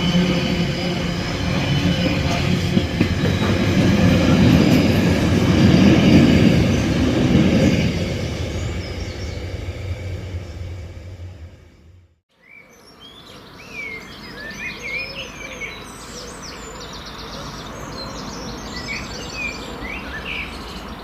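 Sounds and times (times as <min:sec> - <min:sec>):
wheels squealing: 0:00.0 - 0:11.8
train wheels rumbling on rails: 0:00.0 - 0:12.2.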